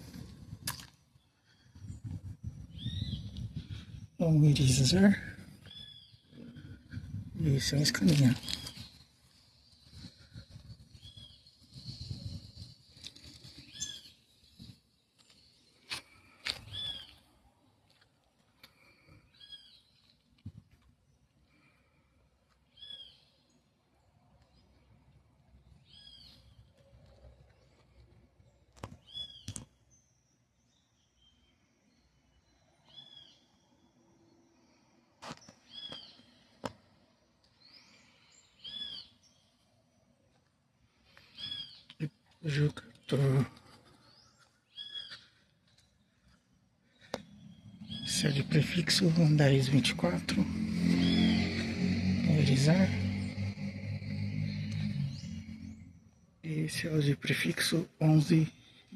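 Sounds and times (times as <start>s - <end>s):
bird chirping: 1.2s - 4.0s, 4.6s - 6.8s, 7.4s - 15.8s, 16.6s - 17.3s, 19.3s - 20.2s, 22.7s - 23.7s, 25.6s - 34.5s, 35.4s - 36.6s, 37.4s - 40.2s, 41.1s - 57.2s
bird calling: 5.5s - 6.8s, 13.5s - 14.2s, 16.6s - 17.2s, 37.6s - 39.5s, 41.1s - 45.6s, 46.9s - 49.9s.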